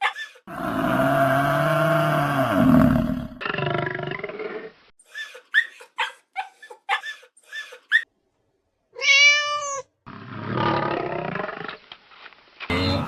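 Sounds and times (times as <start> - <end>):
cat meowing: 9.0 - 9.9.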